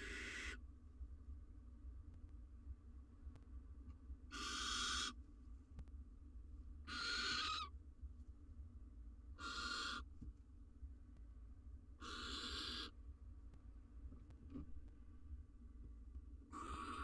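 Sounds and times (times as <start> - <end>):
barn owl hissing: 0.0 - 0.6, 4.3 - 5.2, 6.9 - 7.7, 9.4 - 10.1, 12.0 - 12.9, 16.5 - 17.0.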